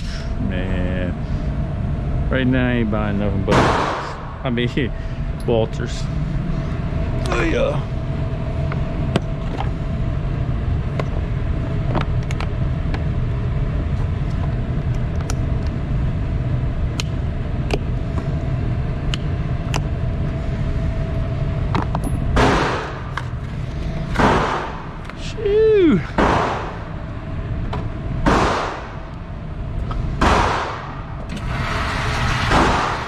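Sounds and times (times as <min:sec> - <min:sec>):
steady low rumble: 0:00.0 - 0:33.0
loud blast: 0:03.4 - 0:04.5, 0:30.2 - 0:33.0.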